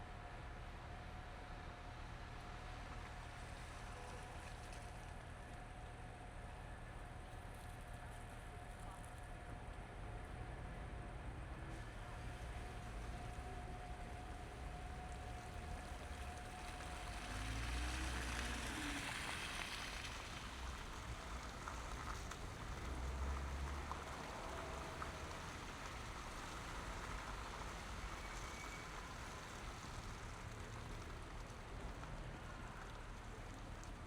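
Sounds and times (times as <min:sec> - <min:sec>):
engines rumbling: 0:10.2 - 0:34.0
tyres hissing on wet pavement: 0:14.2 - 0:34.0
vehicle passing: 0:17.0 - 0:20.6.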